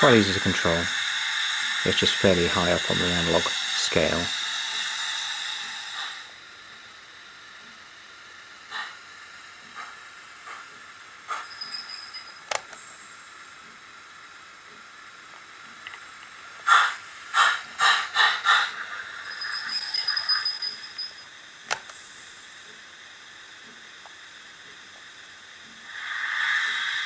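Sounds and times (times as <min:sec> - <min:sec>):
steam exhaust chuffs: 0:00.0 - 0:06.4, 0:08.3 - 0:13.4, 0:16.1 - 0:21.2
steam hiss from small speaker: 0:00.0 - 0:27.0
sharp click: 0:12.5 - 0:12.8, 0:21.7 - 0:22.0.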